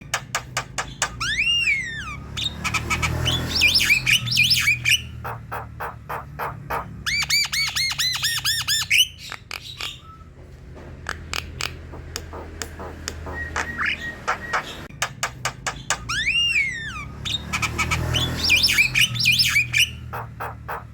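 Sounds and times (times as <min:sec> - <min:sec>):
bird singing clicks and whistles: 0:00.0 - 0:01.8, 0:07.1 - 0:10.4, 0:11.0 - 0:19.9.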